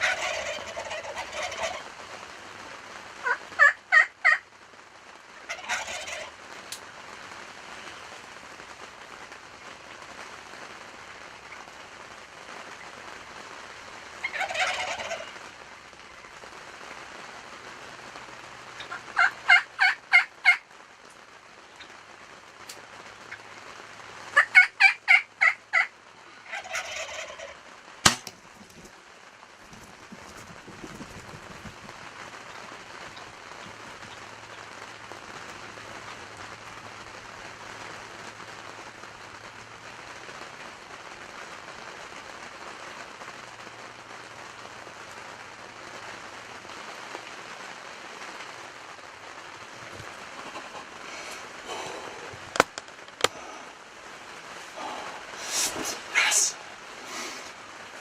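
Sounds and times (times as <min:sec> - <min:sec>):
turkeys gobbling: 0:00.0 - 0:02.1, 0:03.2 - 0:04.4, 0:05.4 - 0:06.4, 0:14.2 - 0:15.5, 0:18.8 - 0:20.6, 0:24.4 - 0:28.9, 0:29.6 - 0:34.6, 0:50.1 - 0:53.6, 0:54.7 - 0:57.6
pouring rain hiss: 0:00.0 - 0:58.0
sharp snap: 0:28.0 - 0:28.4.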